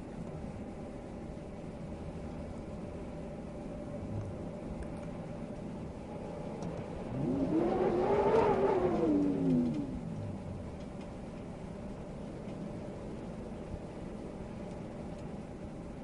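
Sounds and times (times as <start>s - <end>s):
wind: 0.0s - 16.0s
motor vehicle passing by: 6.9s - 10.9s.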